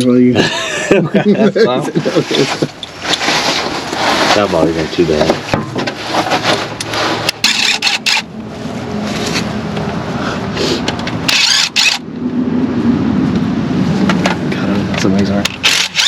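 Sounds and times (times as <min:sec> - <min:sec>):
impact wrench zipping on bolts: 0:07.1 - 0:08.3, 0:11.3 - 0:12.0, 0:15.5 - 0:16.0.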